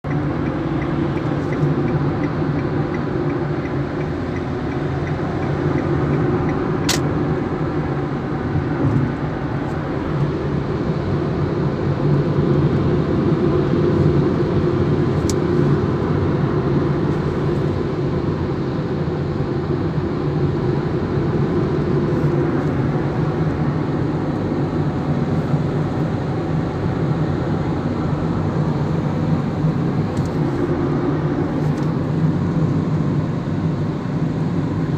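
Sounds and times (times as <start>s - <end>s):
car engine and tyre drone: 0.0s - 34.9s
sharp click: 6.8s - 7.1s.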